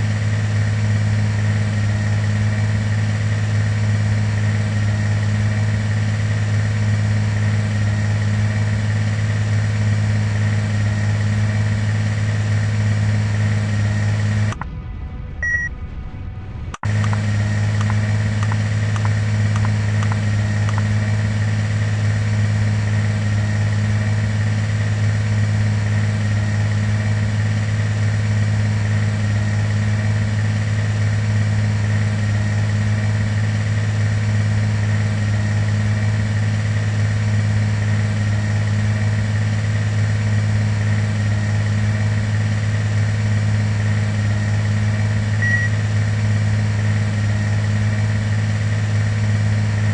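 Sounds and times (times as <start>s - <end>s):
airliner cabin engine drone: 0.0s - 49.9s
high whine: 0.0s - 49.9s.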